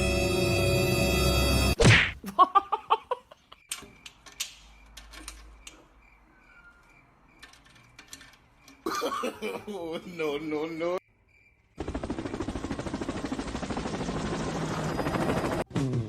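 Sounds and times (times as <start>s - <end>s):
music: 0.0s - 1.8s, 15.7s - 16.0s.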